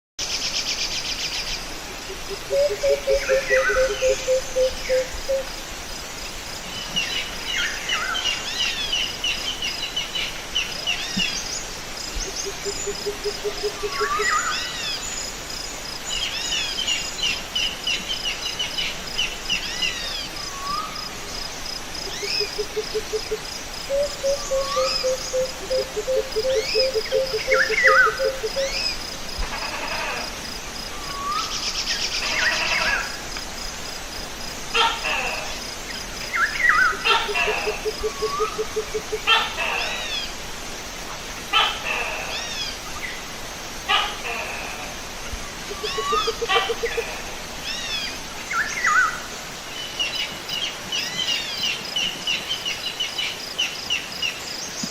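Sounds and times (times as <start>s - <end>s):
background hiss: 0.2s - 54.9s
crickets chirping: 0.2s - 54.9s
birds singing: 45.7s - 47.0s.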